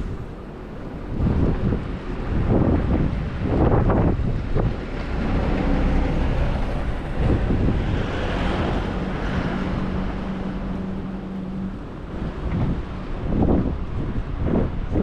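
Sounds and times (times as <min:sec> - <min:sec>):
wind buffeting microphone: 0:00.0 - 0:15.0
vehicle passing: 0:03.8 - 0:13.9.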